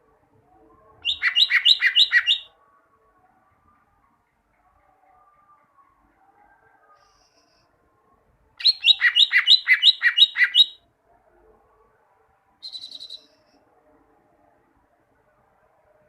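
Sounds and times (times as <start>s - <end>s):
bird singing: 1.0s - 2.5s, 8.6s - 10.8s, 12.6s - 13.3s
bird trill: 1.0s - 2.5s, 8.6s - 10.8s, 12.6s - 13.3s.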